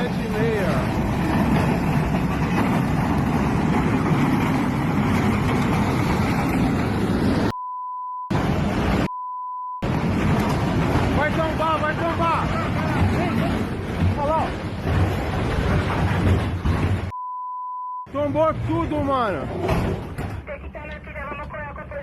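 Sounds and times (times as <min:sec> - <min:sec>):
loud rumbling noise: 0:00.0 - 0:07.5, 0:08.3 - 0:09.1, 0:09.8 - 0:17.1
censor bleep: 0:07.5 - 0:08.3, 0:09.0 - 0:09.8, 0:17.1 - 0:18.1.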